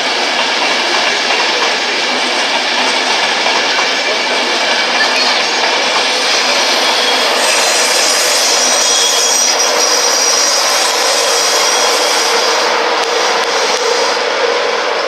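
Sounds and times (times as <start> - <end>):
train passing at speed: 0.0 - 15.0
high-pitched tones: 4.8 - 9.8.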